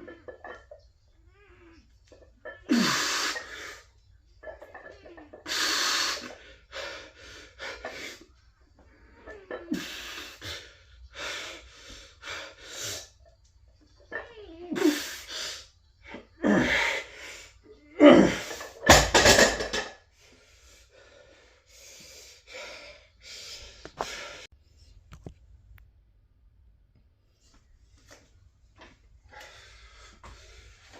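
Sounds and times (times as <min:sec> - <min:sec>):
man grunting: 0:17.9 - 0:18.6
man breathing hard: 0:20.1 - 0:24.5, 0:29.2 - 0:30.9.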